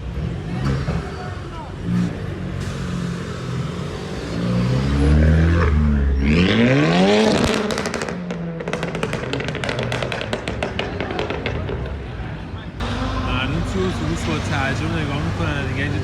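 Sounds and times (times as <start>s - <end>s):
car engine revving: 0.0s - 10.6s, 12.8s - 16.0s
exhaust cracks and pops: 7.3s - 12.2s.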